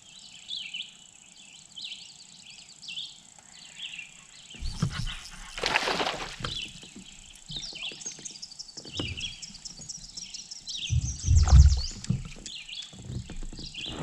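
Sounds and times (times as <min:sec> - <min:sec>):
songbirds chirping and trilling: 0:00.0 - 0:14.0
low knocks: 0:10.8 - 0:12.6.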